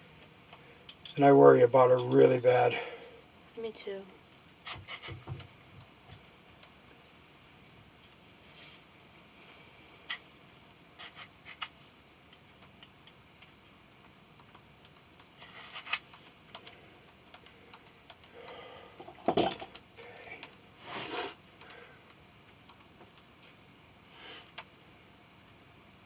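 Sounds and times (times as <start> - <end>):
rustling scrape: 15.4 - 15.9.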